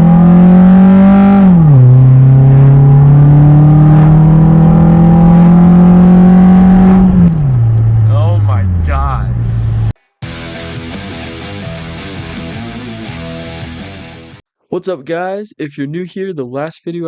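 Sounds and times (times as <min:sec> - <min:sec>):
loud car engine under load: 0:00.0 - 0:10.0.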